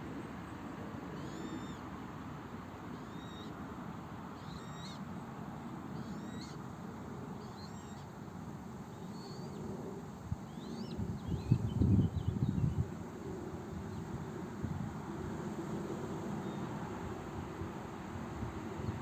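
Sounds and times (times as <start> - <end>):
animal high-pitched calls: 1.2 - 1.8, 4.4 - 5.0.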